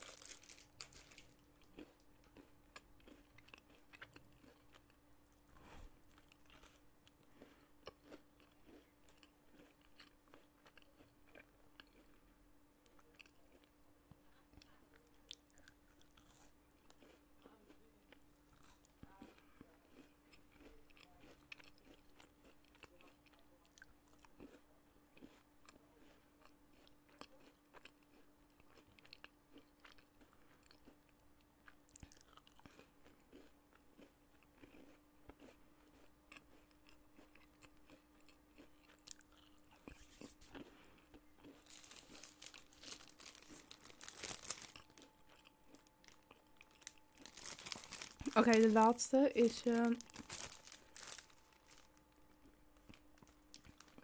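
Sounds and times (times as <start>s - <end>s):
plastic packet crinkling: 0.0s - 1.4s, 41.6s - 45.1s, 45.8s - 52.1s, 53.0s - 54.0s
chewing and crunching: 0.0s - 54.0s.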